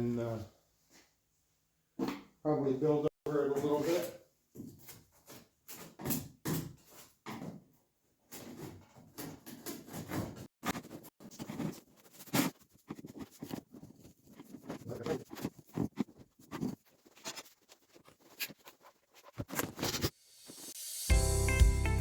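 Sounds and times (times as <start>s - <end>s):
fiberglass cloth crackling and scraping: 9.9s - 20.1s.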